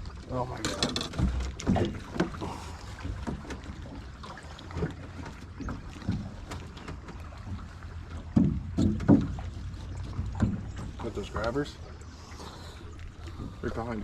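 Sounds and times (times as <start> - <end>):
short knocks: 8.2 - 9.6.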